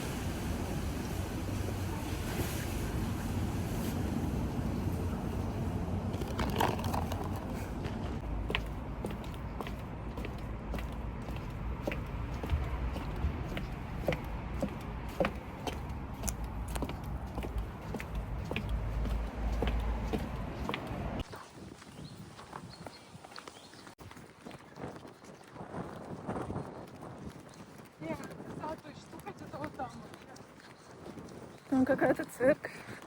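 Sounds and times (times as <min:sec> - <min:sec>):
footsteps walking: 0:05.2 - 0:26.4.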